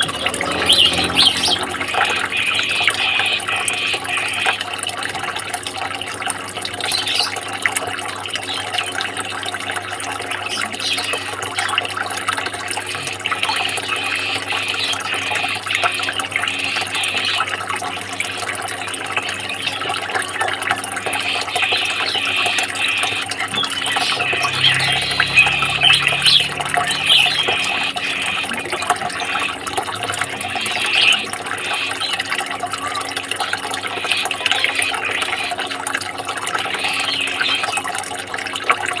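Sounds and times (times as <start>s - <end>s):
water splashing and rushing: 0.0s - 5.0s, 19.4s - 36.6s.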